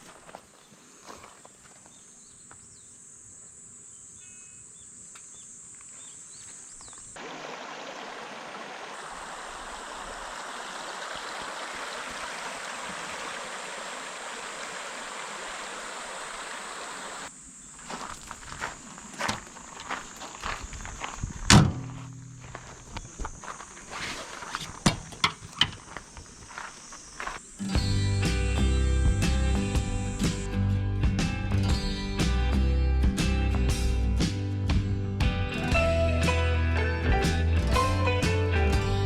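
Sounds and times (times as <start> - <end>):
insects trilling: 0.8 - 8.1, 8.8 - 30.5
stream water flowing: 7.2 - 17.3.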